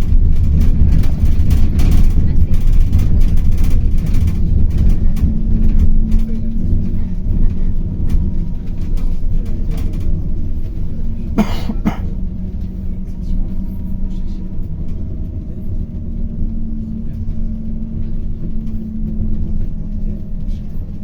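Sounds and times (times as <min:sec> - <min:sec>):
bus engine hum: 0:00.0 - 0:21.0
road rumble: 0:00.0 - 0:21.0
person coughing: 0:11.4 - 0:12.2.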